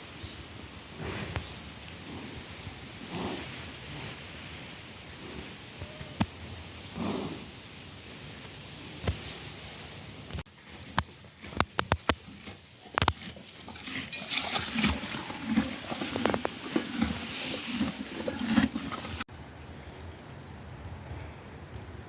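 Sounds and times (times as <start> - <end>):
horse breathing: 1.0 - 4.2, 8.7 - 19.3.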